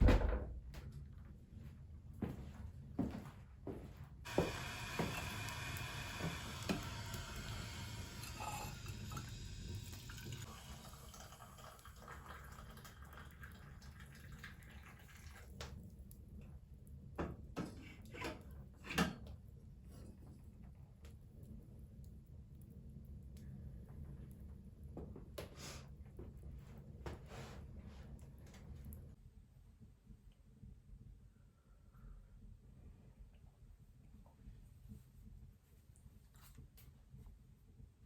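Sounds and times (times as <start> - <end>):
water pouring: 4.3 - 16.0.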